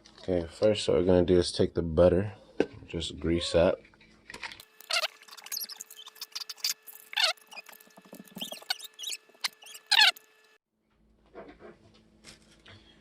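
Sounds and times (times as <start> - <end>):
rubbing and clicking noises: 4.6 - 10.6
butter squeaking on ceramic: 4.8 - 10.4.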